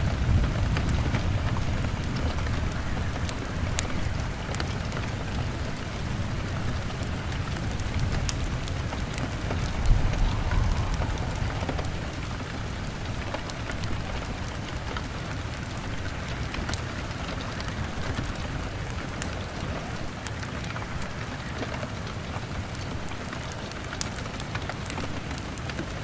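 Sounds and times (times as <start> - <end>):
heavy rain on window: 0.0 - 26.0
log fire crackling: 8.0 - 14.8
deep rumble: 8.4 - 14.4.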